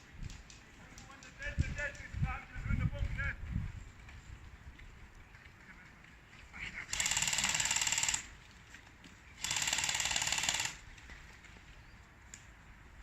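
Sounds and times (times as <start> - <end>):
airsoft gun full-auto bursts: 6.9 - 8.3, 9.4 - 10.8.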